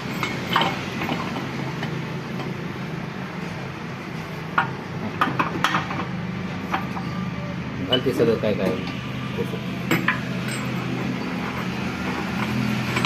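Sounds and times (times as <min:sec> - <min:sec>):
metal tools clinking: 0:09.8 - 0:13.0.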